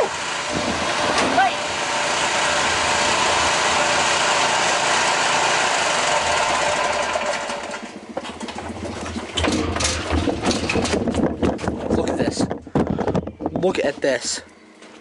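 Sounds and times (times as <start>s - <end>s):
pressure washer water jet hissing: 0.0s - 7.3s
petrol engine running: 0.0s - 10.2s.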